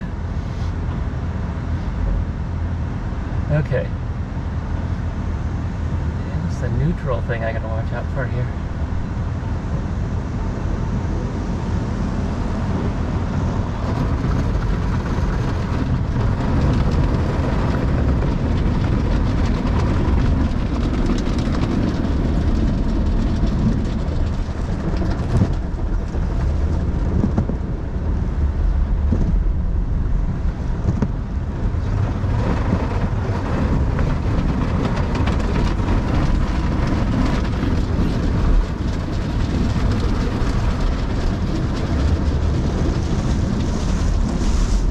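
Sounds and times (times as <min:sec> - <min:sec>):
car wash equipment rumbling: 0:00.0 - 0:44.9.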